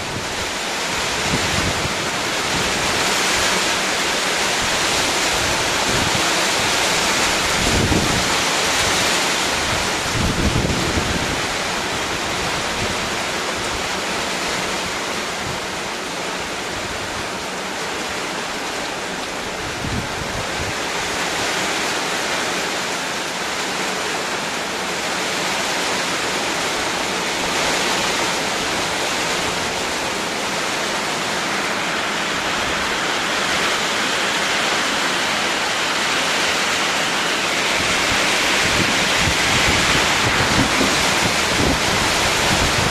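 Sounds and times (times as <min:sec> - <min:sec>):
heavy rain hissing: 0:00.0 - 0:42.9.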